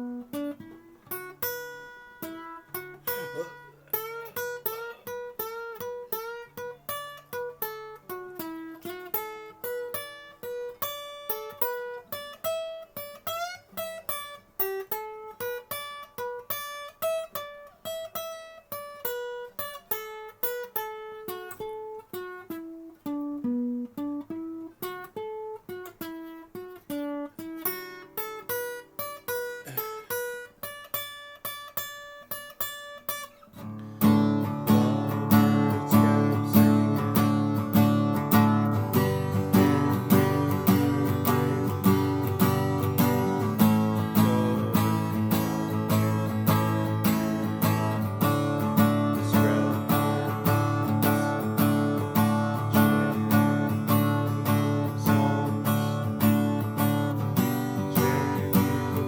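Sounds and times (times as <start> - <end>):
fingerstyle acoustic guitar: 0.0 - 59.0.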